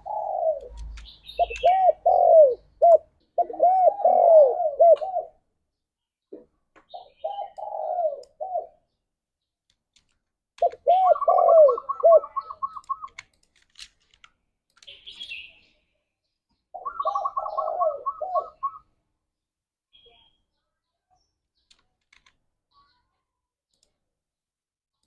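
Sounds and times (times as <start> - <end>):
dove cooing: 0.0 - 5.4, 6.9 - 8.8, 10.6 - 13.2, 16.8 - 18.8.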